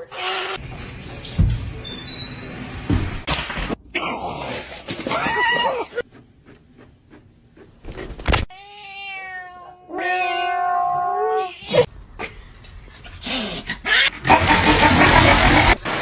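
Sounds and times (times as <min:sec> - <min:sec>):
cat meowing and yowling: 0:08.5 - 0:11.9.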